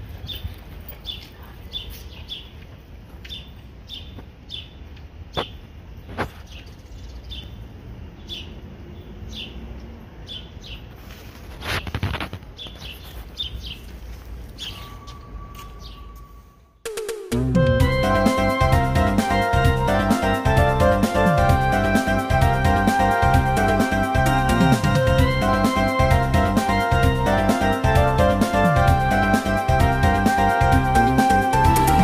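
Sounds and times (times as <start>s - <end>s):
steady low rumble: 17.4s - 31.1s.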